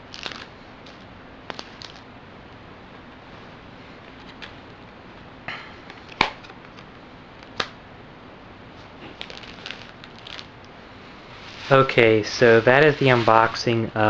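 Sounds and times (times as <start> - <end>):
faint hiss: 8.7 - 14.0.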